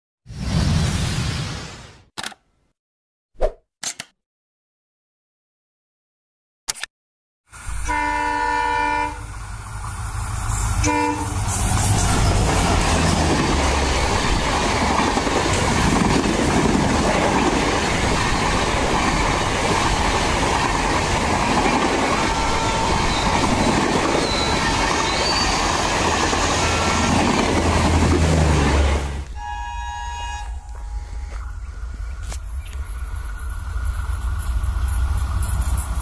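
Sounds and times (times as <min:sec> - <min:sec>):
train rumbling past: 0:07.5 - 0:36.0
locomotive horn: 0:07.7 - 0:09.3, 0:10.8 - 0:11.4, 0:21.9 - 0:25.5, 0:26.4 - 0:27.6, 0:28.7 - 0:31.4.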